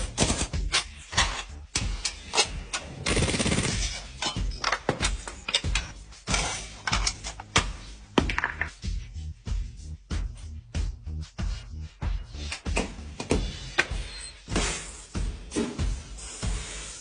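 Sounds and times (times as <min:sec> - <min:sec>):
sharp knocks and clatters: 0:06.9 - 0:08.8.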